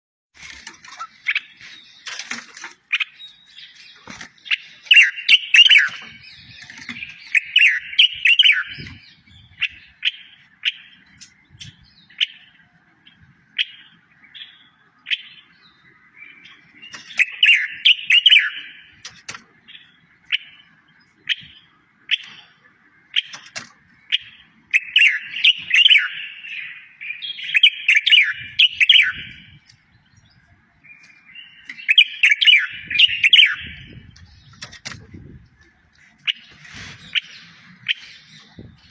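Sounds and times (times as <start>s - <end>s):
songbird singing: 0.4s - 38.9s.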